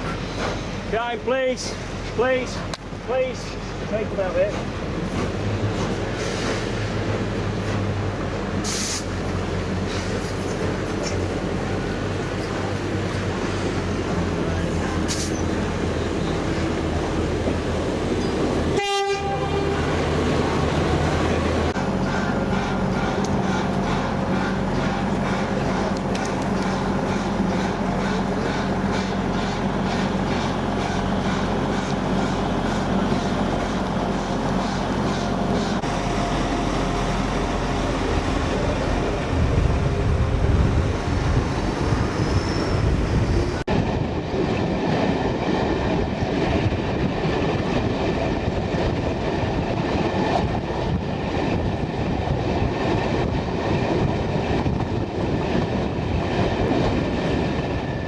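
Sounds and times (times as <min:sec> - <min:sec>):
train wheels clattering on rails: 0:00.0 - 0:00.8, 0:01.6 - 0:18.7, 0:21.7 - 0:35.9.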